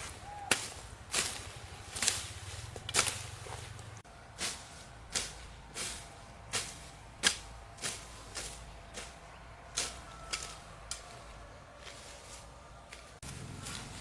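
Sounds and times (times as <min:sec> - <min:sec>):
sharp regular strikes: 0:00.0 - 0:03.6, 0:04.3 - 0:11.2.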